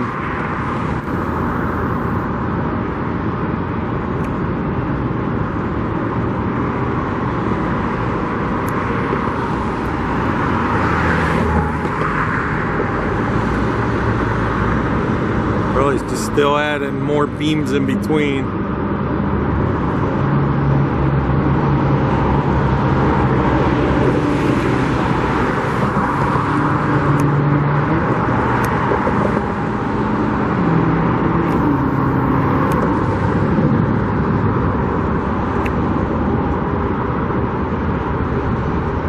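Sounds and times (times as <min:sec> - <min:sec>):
road traffic passing: 0:00.0 - 0:39.0.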